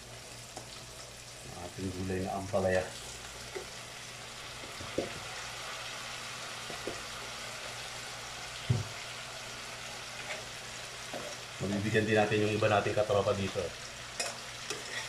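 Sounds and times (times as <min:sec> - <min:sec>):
vegetables sizzling in oil: 0:00.0 - 0:15.0
light knocks on pan: 0:08.6 - 0:09.0.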